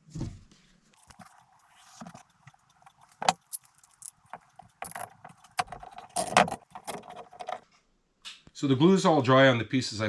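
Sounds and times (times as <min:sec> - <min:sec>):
wooden pieces clicking and knocking: 0:01.0 - 0:07.6.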